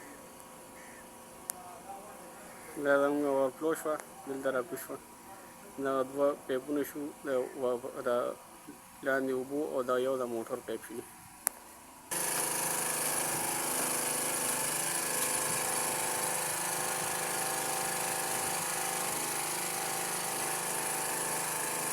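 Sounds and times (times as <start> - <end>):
water pump motor humming: 12.1 - 21.9.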